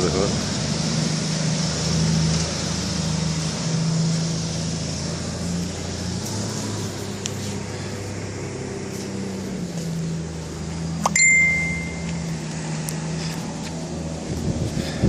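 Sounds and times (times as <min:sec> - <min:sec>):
low engine hum: 0:00.0 - 0:15.0
short high electronic beep: 0:11.1 - 0:12.1.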